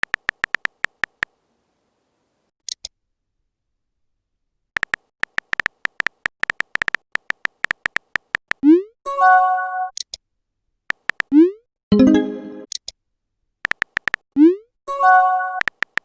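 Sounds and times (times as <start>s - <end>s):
rapid sharp clicks: 0.0s - 1.3s, 4.8s - 8.6s, 10.9s - 11.3s, 13.6s - 14.2s, 15.6s - 16.0s.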